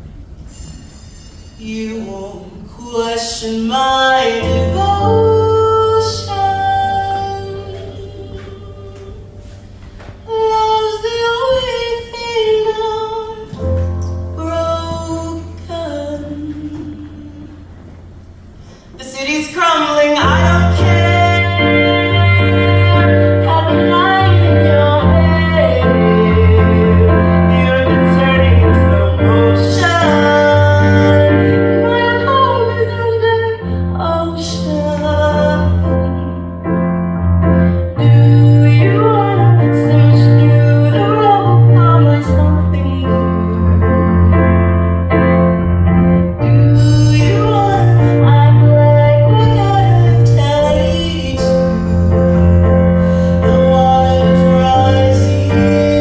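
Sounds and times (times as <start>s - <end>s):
woman singing slow song: 1.6s - 17.8s, 19.0s - 36.6s, 37.9s - 44.5s, 46.2s - 56.0s
sustained accompaniment chords: 35.6s - 56.0s.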